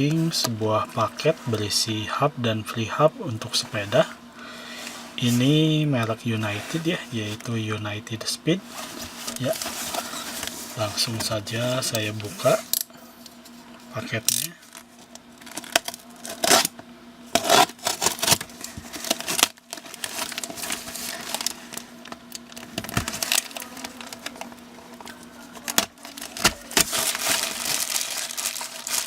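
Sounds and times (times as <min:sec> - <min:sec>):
plastic wrapping tearing and crinkling: 0:14.3 - 0:29.0.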